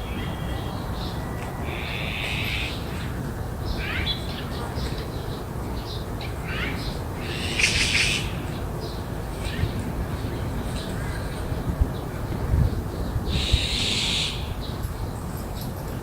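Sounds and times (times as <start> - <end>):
loud harsh bird call: 0.0 - 3.1, 6.5 - 8.6, 13.3 - 14.6.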